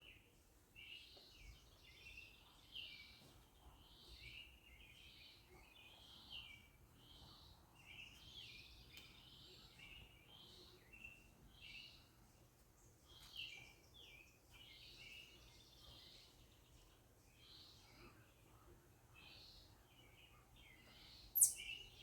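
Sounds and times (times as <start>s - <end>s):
quiet outdoor background noise: 0.0s - 22.0s.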